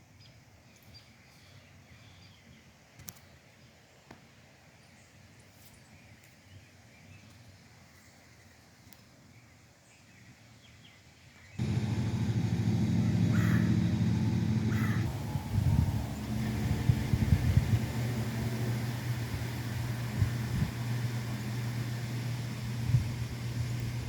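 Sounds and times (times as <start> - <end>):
loud steady engine hum: 11.6 - 24.0
bird chirps: 12.8 - 15.2.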